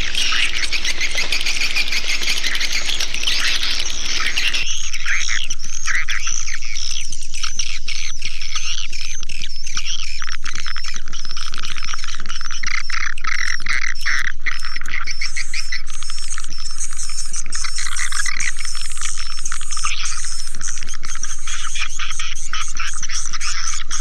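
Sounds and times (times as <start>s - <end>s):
swiftlet chirps and twitters: 0.0s - 5.0s
steady low hum: 0.0s - 7.4s.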